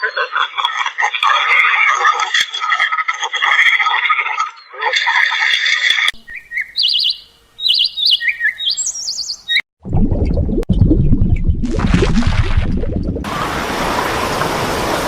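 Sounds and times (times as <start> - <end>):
bird chirping trills: 6.2 - 9.6
low rumbling noise: 9.8 - 15.0.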